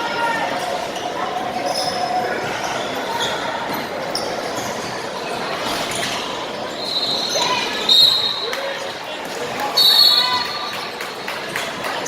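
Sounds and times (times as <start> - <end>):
spectators chattering: 0.0 - 12.0
shoe squeaks: 6.7 - 8.4.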